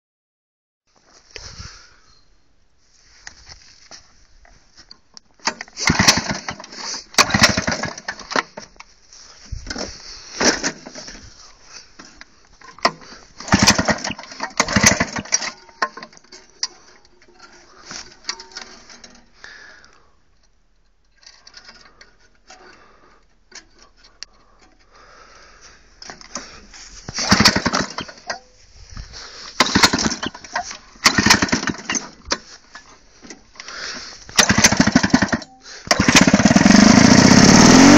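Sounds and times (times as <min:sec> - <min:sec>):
lawn mower engine bursts: 0:05.4 - 0:08.7, 0:12.8 - 0:19.2, 0:26.1 - 0:37.9.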